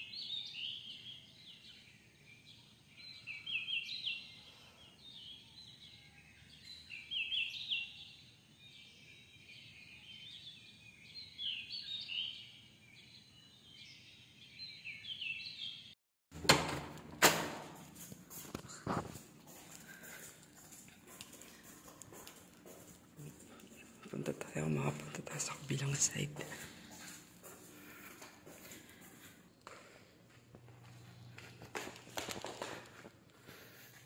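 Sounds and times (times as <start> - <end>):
small birds chirping: 0.0 - 16.0, 18.3 - 34.0
rustling near microphone: 17.4 - 29.6, 30.2 - 34.0.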